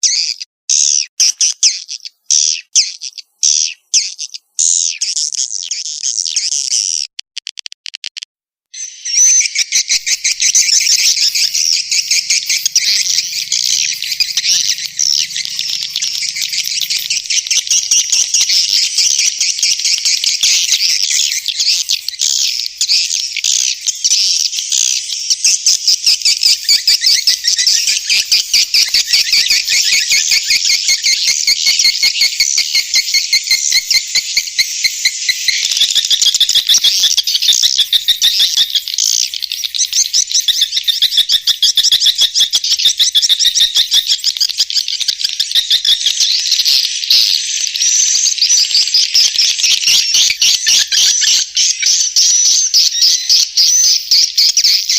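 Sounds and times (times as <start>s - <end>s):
swiftlets twittering: 9.7s - 44.4s.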